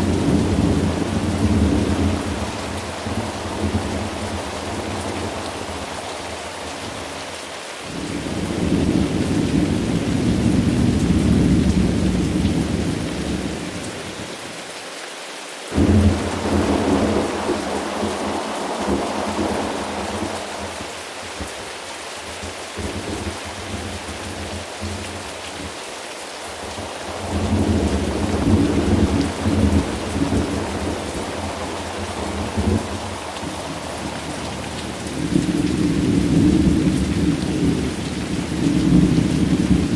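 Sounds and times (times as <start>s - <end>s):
thunder rumbling: 0.0s - 7.2s, 15.8s - 21.5s, 26.5s - 39.9s
steady rain: 0.0s - 39.9s
sharp thunderclap: 15.8s - 20.4s.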